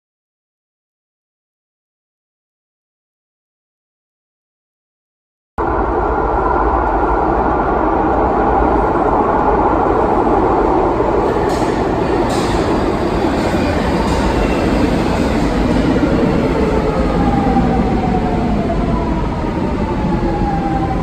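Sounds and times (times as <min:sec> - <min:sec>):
metro train rumbling: 0:05.6 - 0:21.0.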